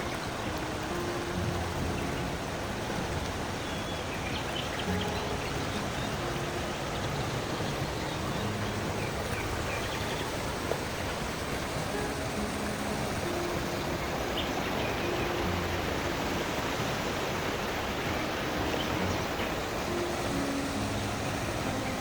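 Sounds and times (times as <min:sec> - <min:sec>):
continuous rushing noise: 0:00.0 - 0:22.0.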